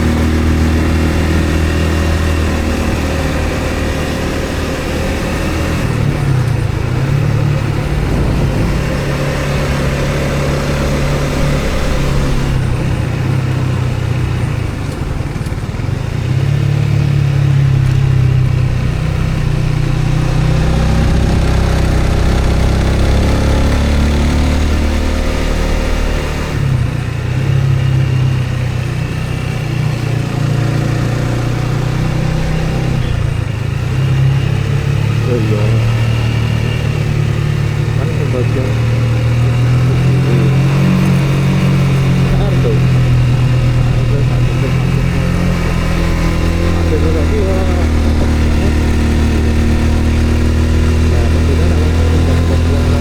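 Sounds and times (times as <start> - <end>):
road and wind noise: 0.0 - 53.0
vehicle engine running: 0.0 - 53.0.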